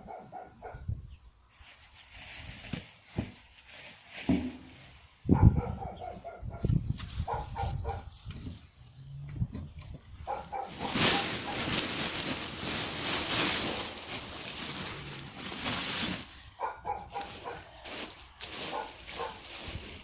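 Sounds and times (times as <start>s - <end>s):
dry leaves rustling: 1.5s - 5.3s, 10.1s - 20.0s.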